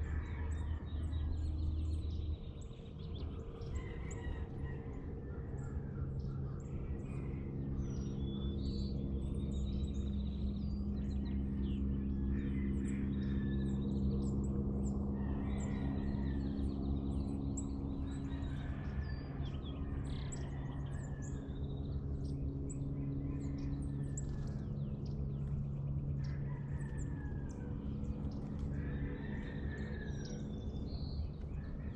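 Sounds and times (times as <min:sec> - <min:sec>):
birds chirping and calling: 0:00.0 - 0:31.9
steady low hum: 0:00.0 - 0:31.9.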